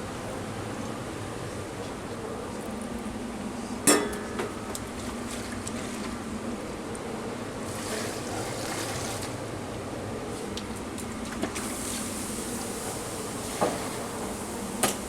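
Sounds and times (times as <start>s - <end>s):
kitchen background rush: 7.6s - 9.5s.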